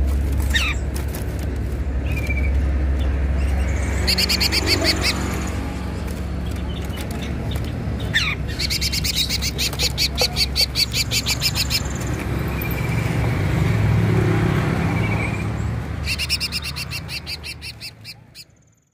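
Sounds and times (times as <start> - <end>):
songbird trilling: 2.0 - 5.6, 6.4 - 13.1, 14.9 - 18.8.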